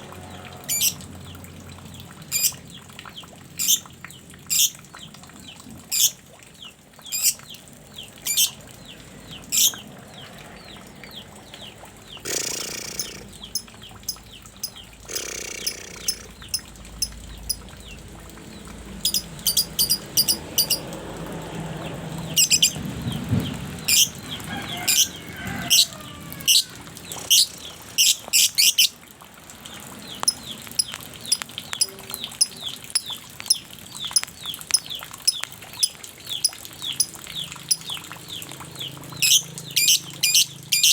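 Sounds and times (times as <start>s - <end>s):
young songbird chirping: 4.5s - 4.8s, 9.6s - 9.8s, 12.2s - 17.7s, 19.0s - 20.8s, 22.4s - 22.8s, 30.2s - 38.0s, 39.2s - 40.9s.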